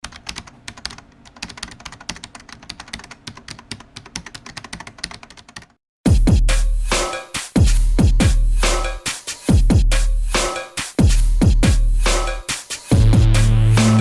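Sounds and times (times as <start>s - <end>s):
keyboard typing: 0.0s - 5.8s
electronic music with deep bass: 11.5s - 14.0s.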